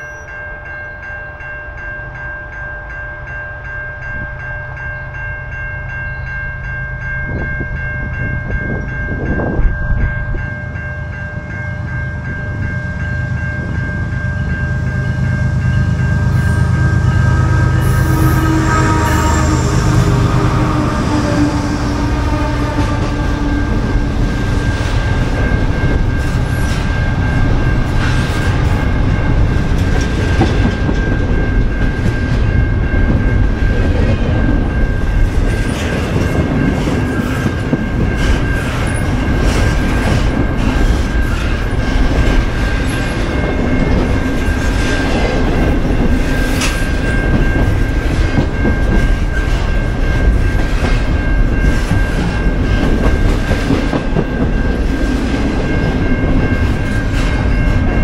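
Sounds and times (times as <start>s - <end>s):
thin ringing tone: 0.0s - 29.5s
train wheels rumbling on rails: 0.0s - 58.0s.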